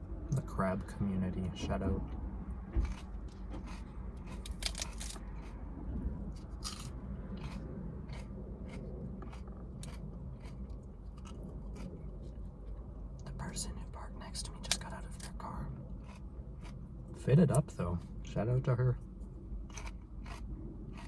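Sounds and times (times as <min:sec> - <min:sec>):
low rumble: 0:00.0 - 0:21.0
lettuce being chewed: 0:01.8 - 0:13.4, 0:14.6 - 0:18.2, 0:19.0 - 0:21.0.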